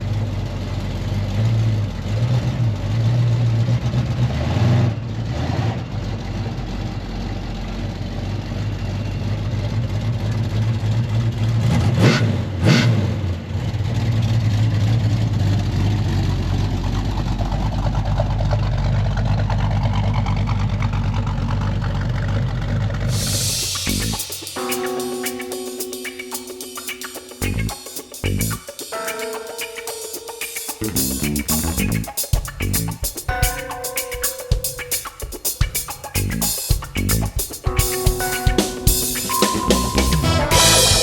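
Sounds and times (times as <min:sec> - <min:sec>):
car engine idling and revving: 0:00.0 - 0:23.1.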